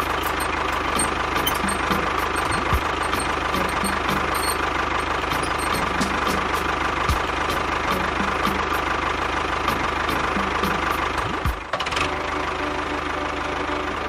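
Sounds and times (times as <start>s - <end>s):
small motor running: 0.0s - 6.6s.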